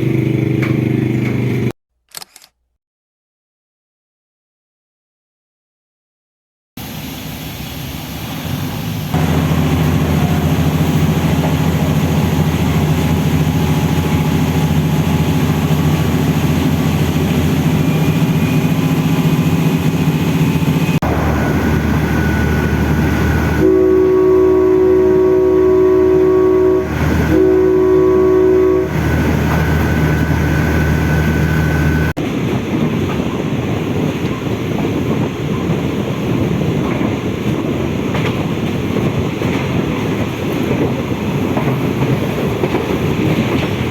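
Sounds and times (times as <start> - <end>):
train engine drone: 0.0 - 1.7, 6.8 - 43.9
rushing noise: 6.8 - 25.2
train horn blasts: 21.0 - 32.1.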